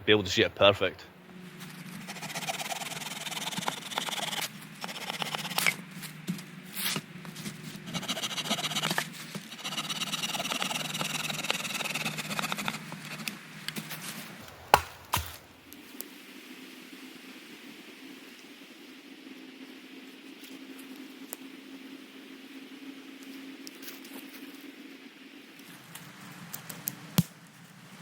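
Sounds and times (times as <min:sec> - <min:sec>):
handsaw rasping through branch: 0:01.8 - 0:05.8, 0:07.9 - 0:13.4, 0:14.4 - 0:15.6
sharp knocks: 0:14.4 - 0:15.5.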